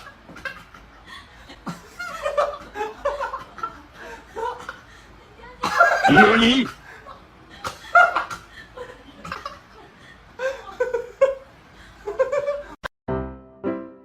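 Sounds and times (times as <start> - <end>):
person laughing: 5.6 - 6.8
piano music: 13.1 - 14.0.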